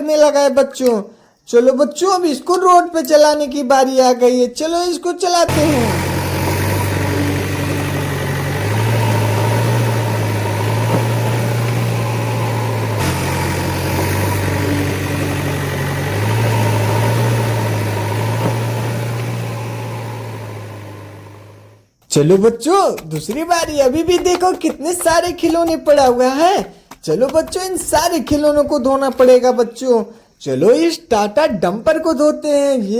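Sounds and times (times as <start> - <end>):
vehicle engine running: 5.5 - 21.9.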